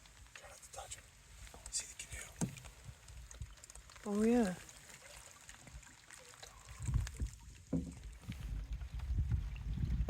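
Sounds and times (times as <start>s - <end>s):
water lapping: 0.0s - 10.0s
knocks against canoe hull: 2.4s - 2.7s, 7.2s - 8.1s.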